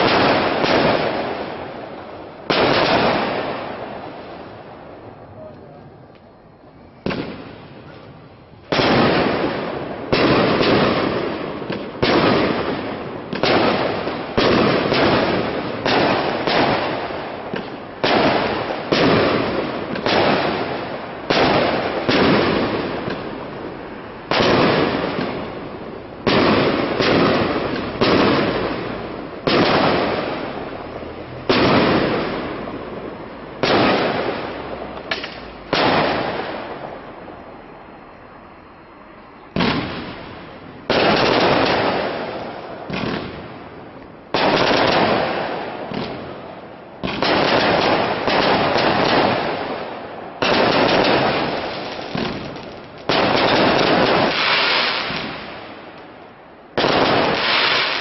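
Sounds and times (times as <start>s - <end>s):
long echo of bangs: 0.0s - 5.0s, 8.7s - 37.4s, 39.6s - 56.0s
firework shells bursting: 33.6s - 36.9s, 39.6s - 56.2s, 56.8s - 58.0s.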